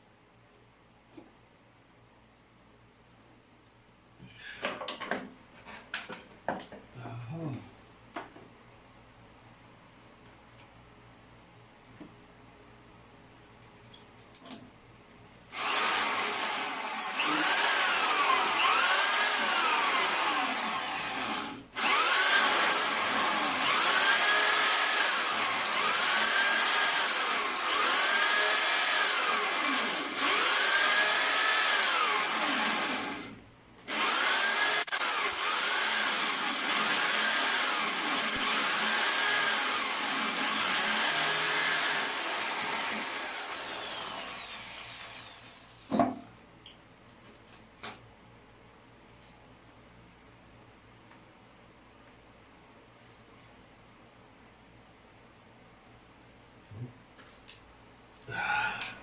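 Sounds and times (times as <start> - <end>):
handheld power tool running: 15.5 - 45.8.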